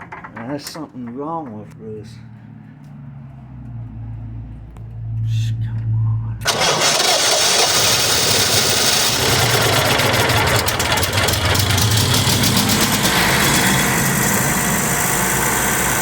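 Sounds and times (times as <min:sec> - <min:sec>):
generator engine droning: 0:06.4 - 0:16.0.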